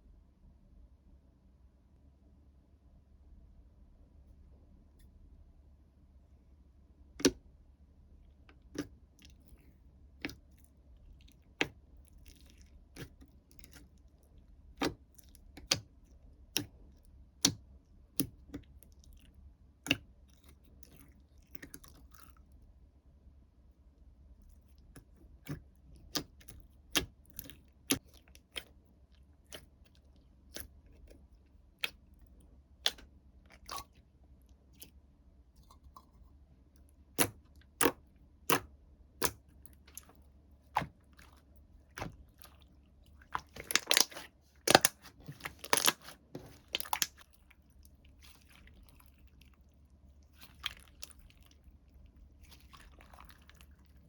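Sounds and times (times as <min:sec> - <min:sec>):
slime clicking and popping: 0:43.4 - 0:47.2.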